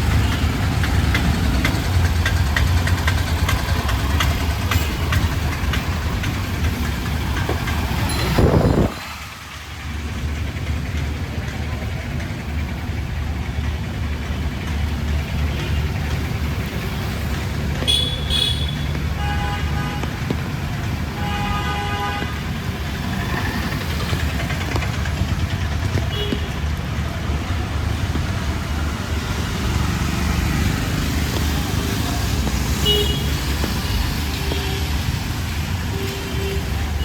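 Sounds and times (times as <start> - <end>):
vehicle engines rumbling: 0.0 - 37.0
car horn honking: 17.8 - 20.1, 32.8 - 34.8.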